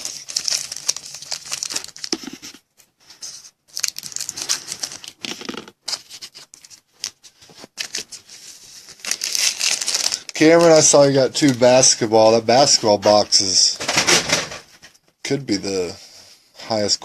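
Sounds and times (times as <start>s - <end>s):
wrapper crinkling and tearing: 0.0s - 2.5s, 3.7s - 13.2s
cards shuffled by hand: 0.0s - 11.0s.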